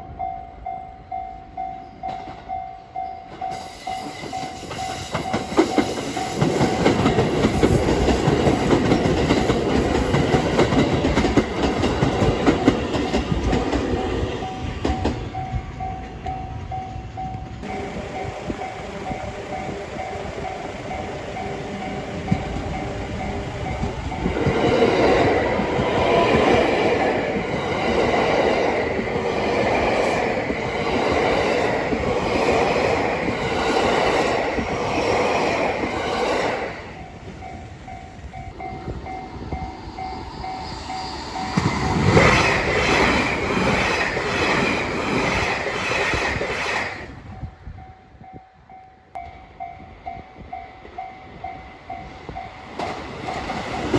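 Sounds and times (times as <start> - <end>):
train wheels clattering over rail joints: 4.2 - 15.2, 52.6 - 53.9.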